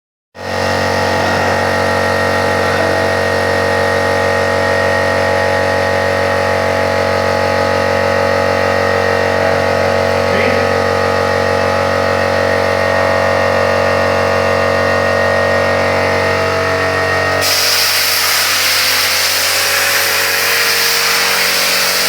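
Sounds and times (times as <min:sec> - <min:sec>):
plasma cutter running: 0:15.3 - 0:22.0.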